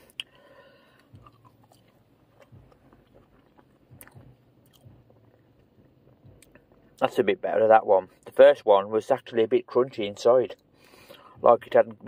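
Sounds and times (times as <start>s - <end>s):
person chewing chips: 0.0s - 7.1s.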